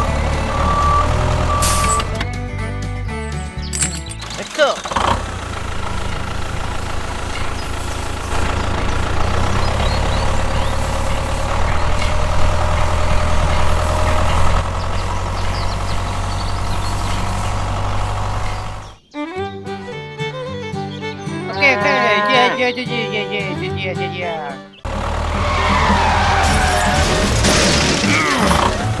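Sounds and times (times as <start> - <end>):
music: 0.0 - 4.8, 18.9 - 29.0
tractor engine humming: 0.0 - 19.2, 20.7 - 29.0.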